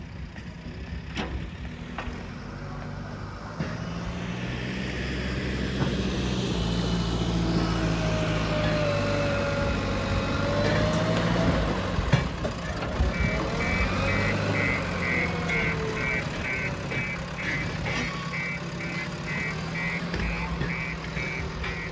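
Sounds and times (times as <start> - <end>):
diesel engine running: 0.0 - 21.9
rapid high beeps: 13.1 - 21.9.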